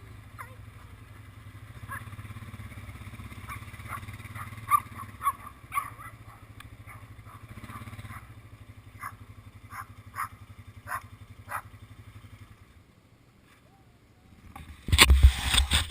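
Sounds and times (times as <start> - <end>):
atv engine idling: 0.0 - 15.9
dog barking: 1.9 - 2.1, 3.4 - 8.4, 9.0 - 11.7.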